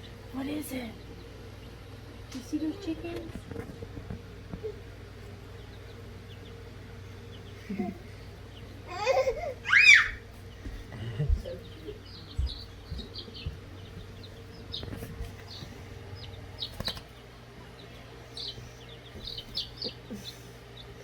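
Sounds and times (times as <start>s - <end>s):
chicks peeping: 0.0s - 21.0s
low steady hum: 0.0s - 21.0s.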